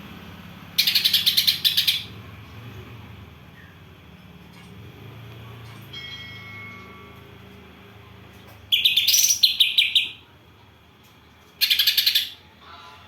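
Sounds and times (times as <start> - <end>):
songbird chirping: 8.7 - 10.3.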